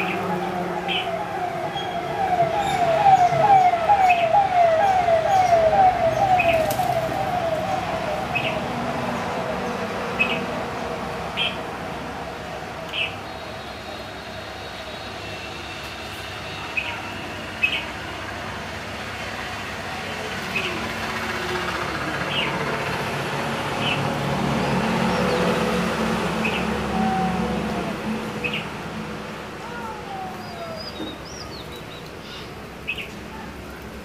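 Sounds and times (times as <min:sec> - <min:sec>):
high bird chirps: 0:00.0 - 0:08.6
falling wail siren: 0:00.0 - 0:10.6, 0:24.2 - 0:31.6.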